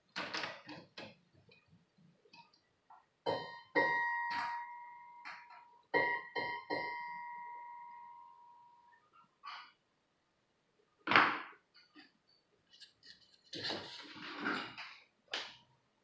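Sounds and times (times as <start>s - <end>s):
bell-like ringing tone: 3.4s - 9.0s.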